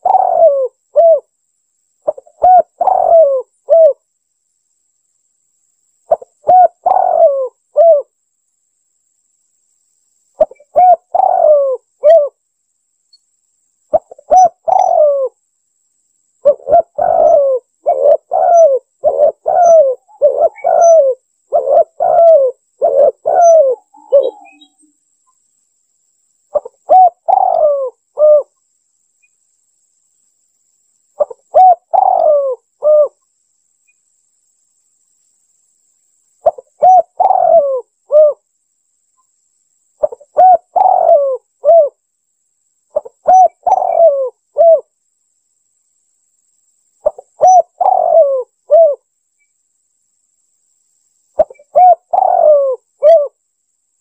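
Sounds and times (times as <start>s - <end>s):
dove cooing: 0.0s - 1.3s, 2.0s - 4.0s, 6.1s - 8.1s, 10.4s - 12.4s, 13.9s - 15.4s, 16.4s - 24.8s, 26.5s - 28.5s, 31.2s - 33.2s, 36.4s - 38.4s, 40.0s - 42.0s, 42.9s - 44.9s, 47.0s - 49.0s, 51.4s - 53.4s.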